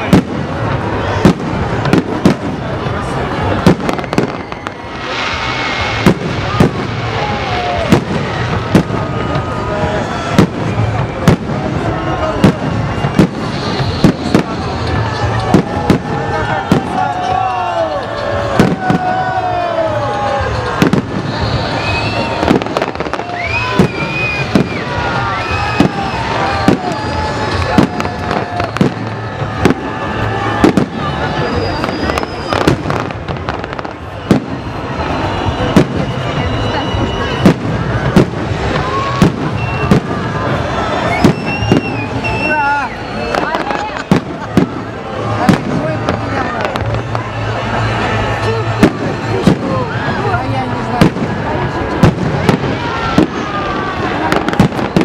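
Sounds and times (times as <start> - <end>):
crackling hiss of fireworks: 0.0 - 55.0
crowd voices: 0.0 - 55.0
fireworks bangs: 0.0 - 55.0.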